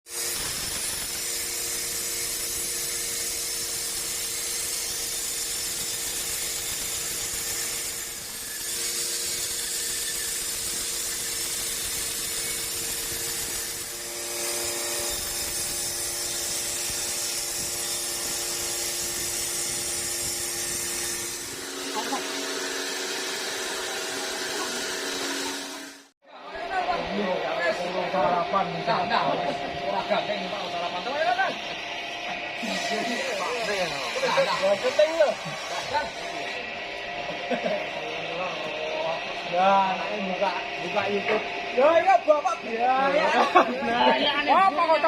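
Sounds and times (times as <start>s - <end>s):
sawmill saw cutting wood: 0.1s - 45.0s
two-tone machine hum: 1.2s - 45.0s.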